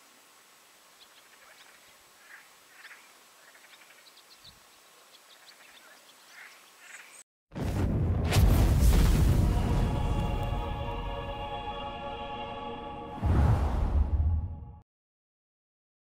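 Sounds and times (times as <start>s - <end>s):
rough quacking bird calls: 1.0s - 4.2s.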